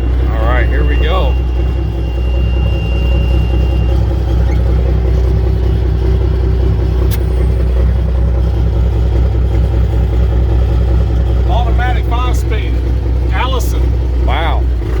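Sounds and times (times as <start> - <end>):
steady high beep: 0.0 - 10.7
diesel truck engine running: 0.0 - 15.0
sharp click: 7.1 - 7.5.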